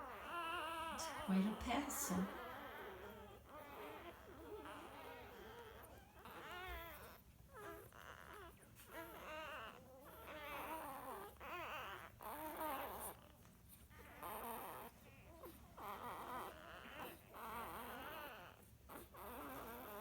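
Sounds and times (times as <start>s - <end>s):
puppies squeaking and whimpering: 0.0s - 20.0s.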